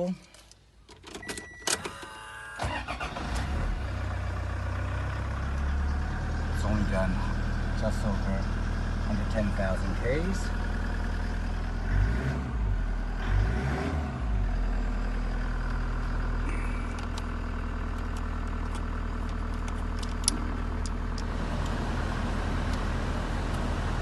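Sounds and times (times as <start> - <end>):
diesel engine idling: 2.6 - 13.2, 14.2 - 24.0.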